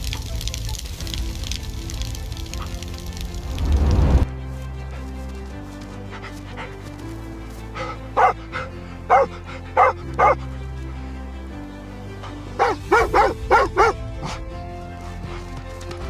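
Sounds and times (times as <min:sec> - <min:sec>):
background music: 0:00.0 - 0:16.0
dog barking: 0:07.8 - 0:10.4, 0:12.6 - 0:14.4.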